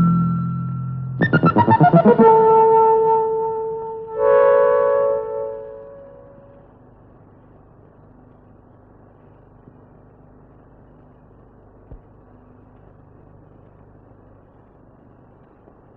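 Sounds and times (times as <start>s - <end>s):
old recording hum and hiss: 0.0s - 15.9s
faint click: 11.0s - 15.8s.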